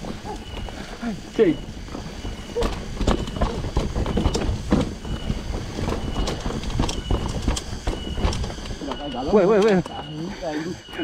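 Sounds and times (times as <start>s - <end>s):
low tyre rumble: 0.0s - 10.0s
bike knocks and rattles: 1.6s - 9.9s.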